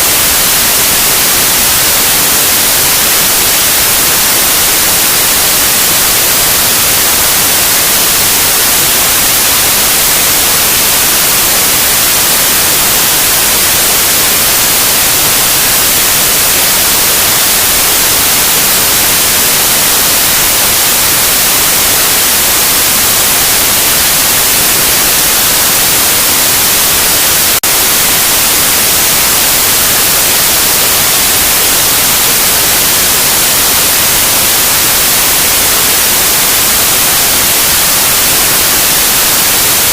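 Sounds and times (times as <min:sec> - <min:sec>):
loud white noise static: 0:00.0 - 0:39.9.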